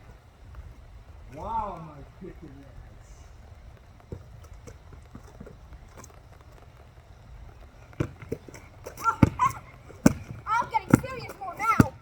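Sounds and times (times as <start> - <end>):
basketball bouncing on court: 4.0 - 6.1, 7.6 - 12.0.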